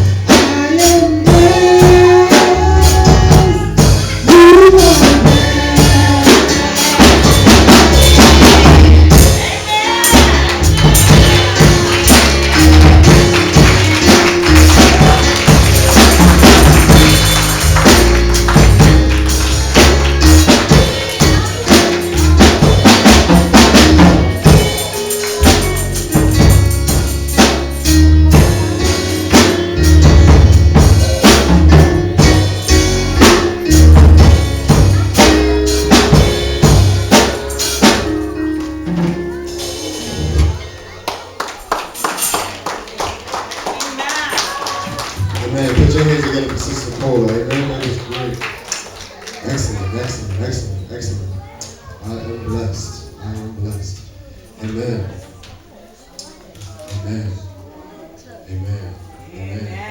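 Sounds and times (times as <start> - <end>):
live gospel music: 0.0 - 58.2
tambourine: 10.0 - 30.0.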